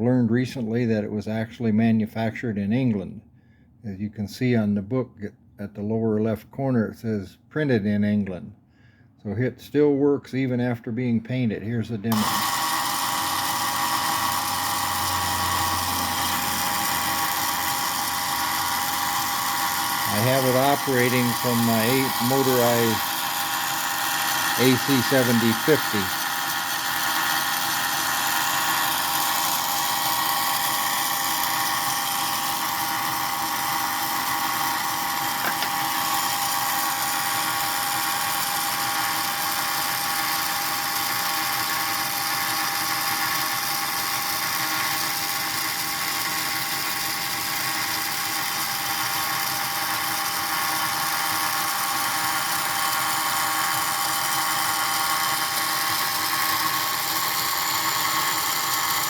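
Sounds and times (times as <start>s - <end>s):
small electric motor whining: 12.1s - 59.0s.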